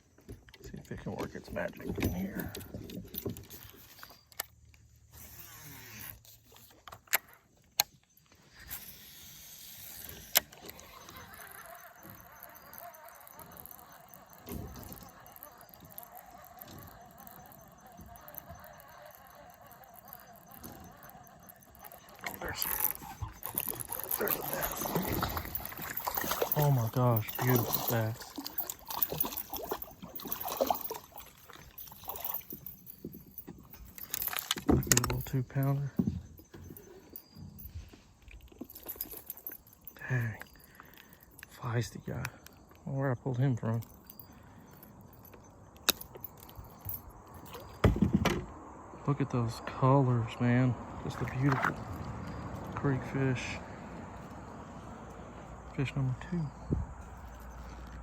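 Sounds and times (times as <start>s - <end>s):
fishing reel whirring: 8.4s - 37.8s
fishing reel clicks: 8.7s - 35.4s
water splashing: 10.6s - 32.7s.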